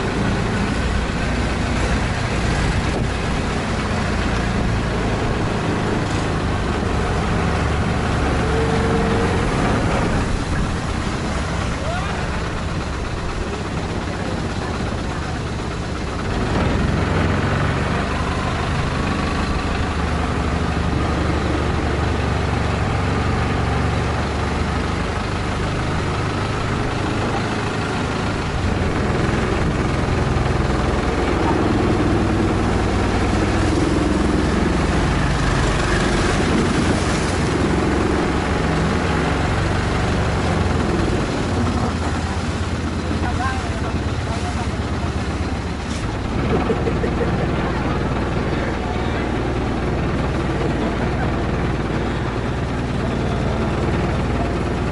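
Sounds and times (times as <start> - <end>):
boat engine running: 0.0 - 54.9.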